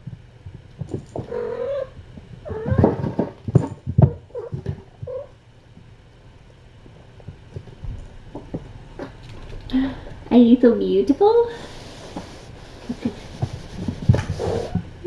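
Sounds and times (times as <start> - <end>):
cat meowing: 1.2 - 3.3.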